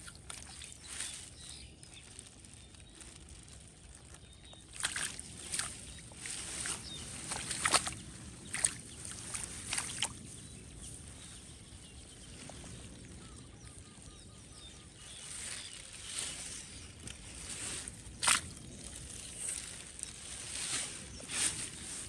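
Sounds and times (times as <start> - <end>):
shallow water splashing: 0.0 - 1.6, 4.6 - 13.3, 14.7 - 22.0.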